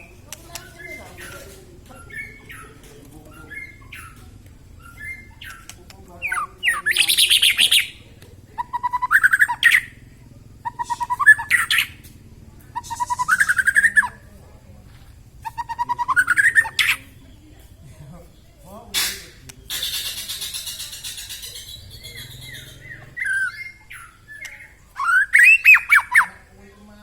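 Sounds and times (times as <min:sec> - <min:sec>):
bird rapid repeated notes: 0:00.0 - 0:08.0, 0:12.7 - 0:14.2, 0:18.9 - 0:26.3
bird soft chirps: 0:15.4 - 0:26.3.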